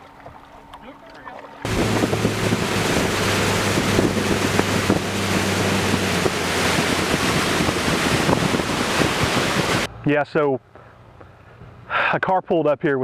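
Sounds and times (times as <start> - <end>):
low motor hum: 1.7 - 9.9
wind buffeting microphone: 1.7 - 9.9.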